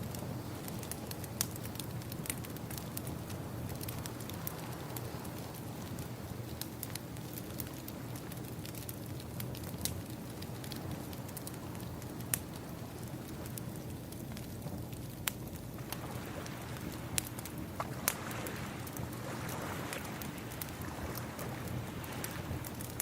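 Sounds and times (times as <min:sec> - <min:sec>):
wood fire crackling: 0:00.0 - 0:23.0
ocean waves: 0:15.8 - 0:22.9.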